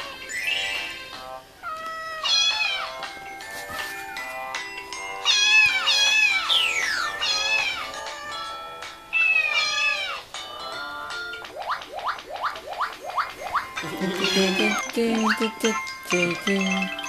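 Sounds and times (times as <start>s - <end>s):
cat meowing: 0.0s - 3.0s, 5.2s - 7.9s, 9.2s - 10.3s
background music: 2.4s - 17.0s.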